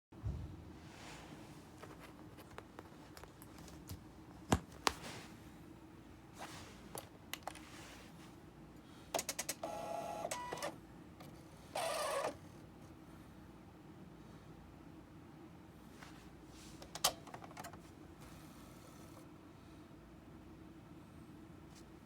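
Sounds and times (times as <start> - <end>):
printer mechanism clicking: 9.2 - 10.7.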